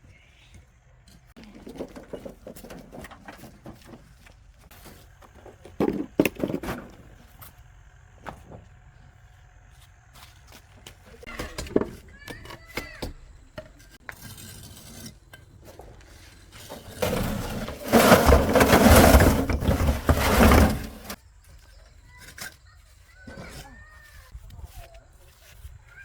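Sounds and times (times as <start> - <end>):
hard objects clattering and scraping: 1.4 - 7.2, 14.0 - 21.2.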